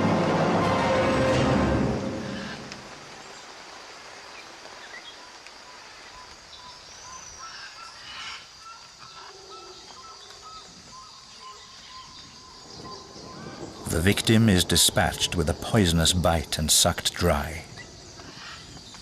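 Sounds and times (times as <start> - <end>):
louder rain patter: 0.0 - 7.2, 12.1 - 18.2
rain hissing on foliage: 0.1 - 19.0.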